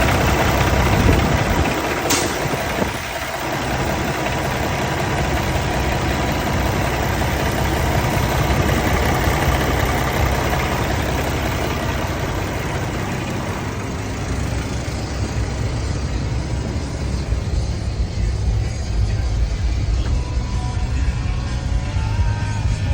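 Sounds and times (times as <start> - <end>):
diesel truck engine idling: 0.0 - 22.9
brief click: 2.1 - 2.4.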